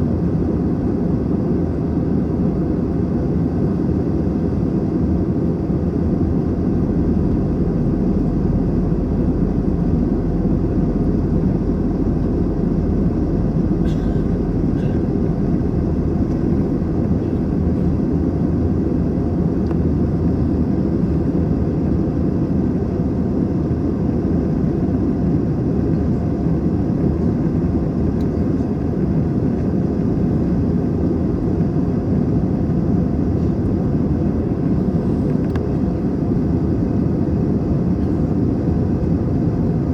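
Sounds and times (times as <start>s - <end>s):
airplane cabin engine rush: 0.0s - 39.9s.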